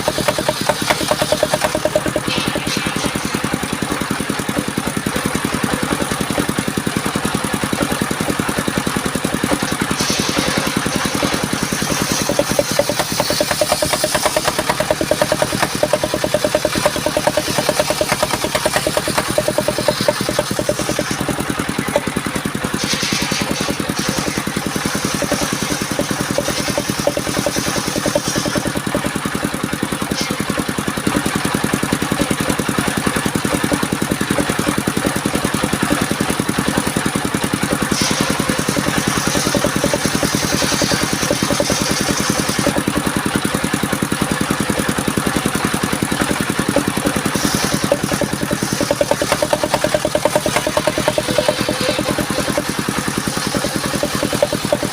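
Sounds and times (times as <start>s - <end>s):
sawmill engine running: 0.0s - 54.9s
saw blade hissing through log: 9.6s - 29.1s, 37.8s - 42.8s, 46.4s - 54.9s.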